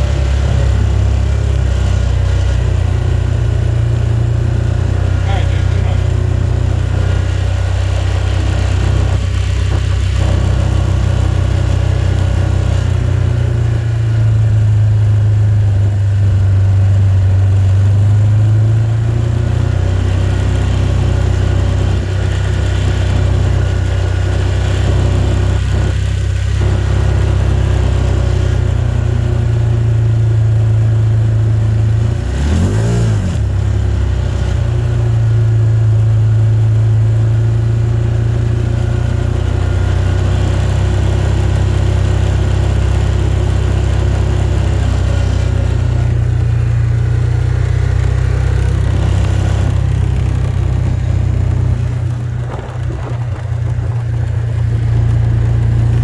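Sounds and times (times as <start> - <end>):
car engine and road drone: 0.0 - 56.0.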